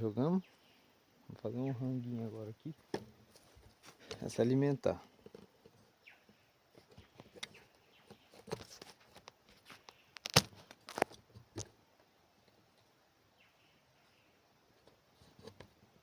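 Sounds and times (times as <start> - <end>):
rustling and crinkling: 2.1 - 13.0, 14.7 - 16.0.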